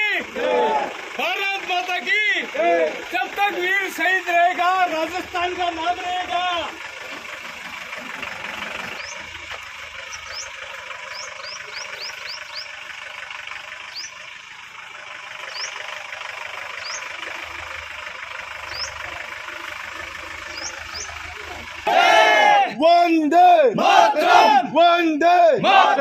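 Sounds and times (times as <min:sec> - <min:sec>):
outdoor background noise: 0:00.0 - 0:26.0
vehicle engine idling: 0:00.0 - 0:26.0
bird chirps: 0:08.8 - 0:12.9, 0:13.8 - 0:14.3, 0:15.3 - 0:16.1, 0:16.7 - 0:17.2, 0:18.6 - 0:19.2, 0:20.4 - 0:21.4.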